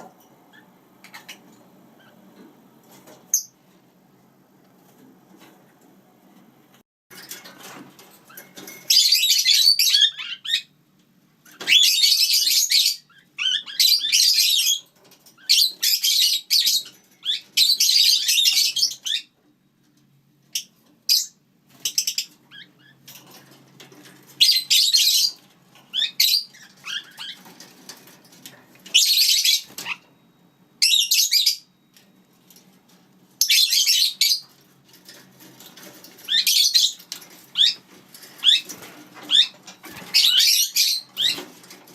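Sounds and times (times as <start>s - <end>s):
parakeets chattering: 0.0s - 2.4s, 8.2s - 10.8s, 11.4s - 19.4s, 20.5s - 30.2s, 33.3s - 41.9s.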